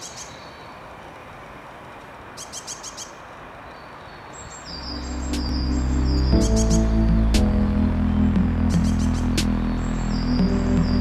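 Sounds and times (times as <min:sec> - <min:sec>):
small birds chirping: 0:00.0 - 0:00.9, 0:02.3 - 0:11.0
background noise: 0:00.0 - 0:11.0
music: 0:04.8 - 0:11.0.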